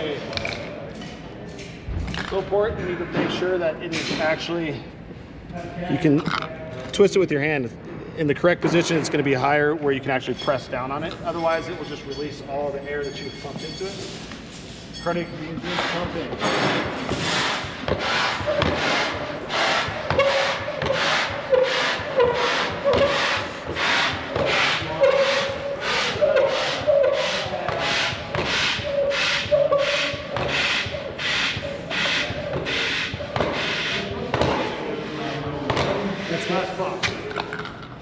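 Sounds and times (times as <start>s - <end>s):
hand air pump strokes: 15.5s - 37.1s
squeaky pump tone: 17.3s - 34.3s.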